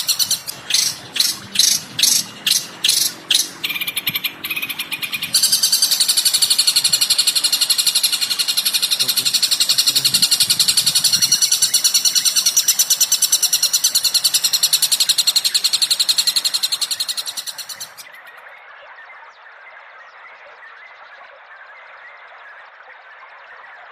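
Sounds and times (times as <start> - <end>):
songbird chirping: 0.0 - 22.8.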